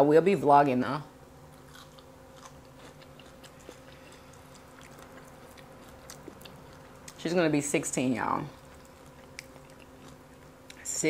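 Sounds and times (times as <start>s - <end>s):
faint steady hum: 0.0s - 11.0s
person chewing fried fish: 1.5s - 7.2s, 8.5s - 10.8s.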